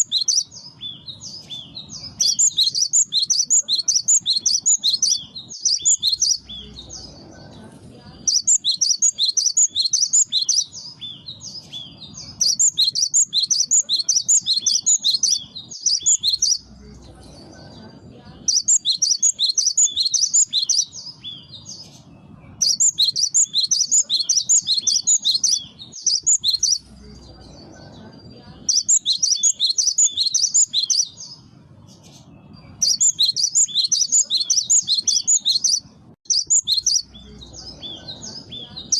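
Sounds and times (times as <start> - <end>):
bird singing high repeated notes: 0.0 - 6.8, 8.3 - 16.7, 18.5 - 21.7, 22.6 - 27.0, 28.6 - 31.4, 32.4 - 37.4.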